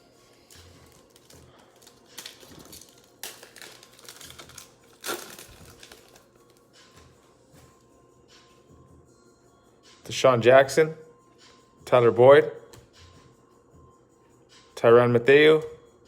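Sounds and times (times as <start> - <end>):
cards and wrappers rustling: 0.3 - 6.6.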